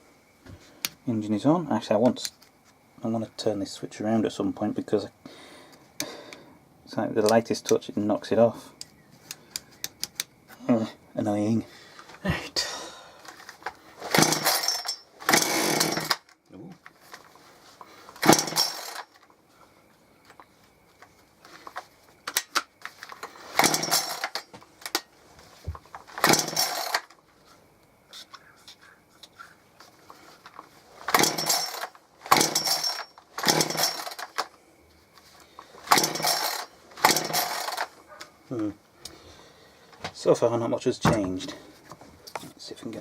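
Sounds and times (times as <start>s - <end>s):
chainsaw engine turning over: 13.2s - 16.4s, 18.0s - 19.2s, 21.5s - 25.1s, 25.9s - 27.2s, 30.4s - 34.6s, 35.6s - 38.0s
chainsaw recoil starter pulls: 13.2s - 16.4s, 18.1s - 19.2s, 21.6s - 25.1s, 25.9s - 27.1s, 30.5s - 34.6s, 35.7s - 38.0s.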